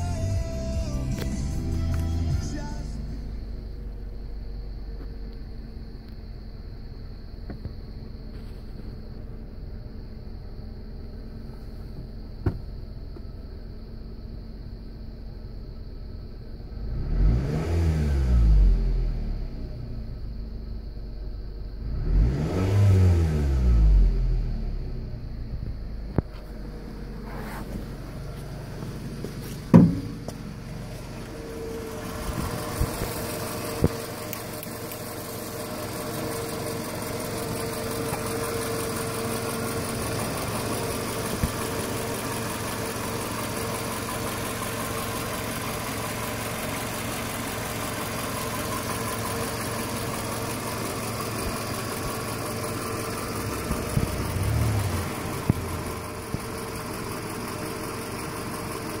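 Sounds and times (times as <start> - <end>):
car engine idling: 0.0 - 59.0
loud thump: 29.5 - 30.5.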